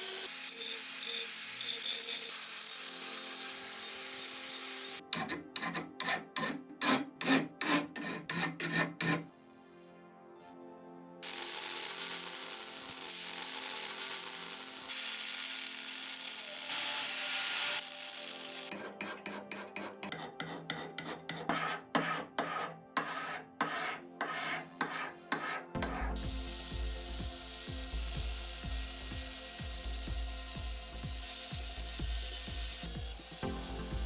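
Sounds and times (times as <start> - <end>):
power tool humming: 0.0 - 5.0, 11.2 - 18.7, 26.1 - 34.0
power tool scouring hiss: 0.0 - 5.0, 11.2 - 18.7, 26.1 - 34.0
rasping hand strokes: 5.2 - 9.2, 18.7 - 26.3.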